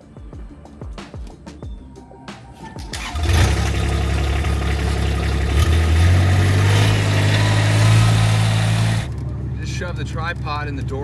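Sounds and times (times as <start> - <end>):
vehicle engine starting and running: 2.7 - 11.0.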